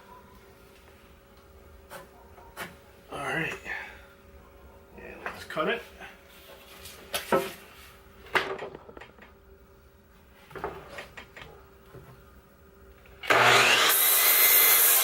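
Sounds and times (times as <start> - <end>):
electric saw cutting wood: 13.2 - 15.0.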